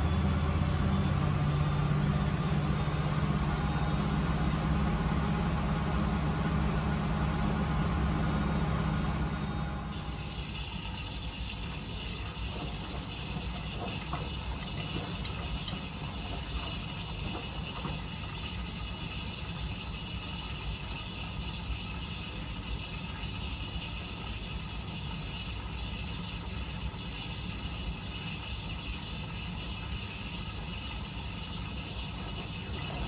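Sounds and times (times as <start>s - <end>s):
motor hum: 0.0s - 19.6s
washing machine rumbling: 0.0s - 33.0s.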